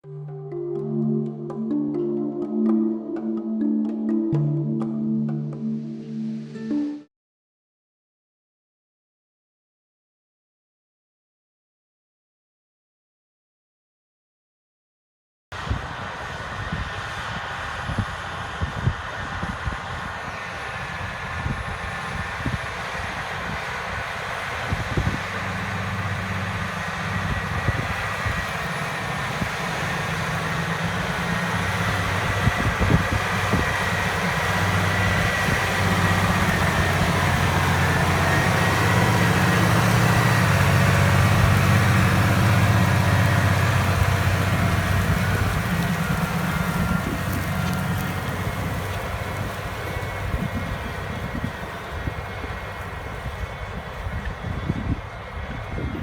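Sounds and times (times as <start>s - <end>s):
tractor diesel engine under load: 15.6s - 56.0s.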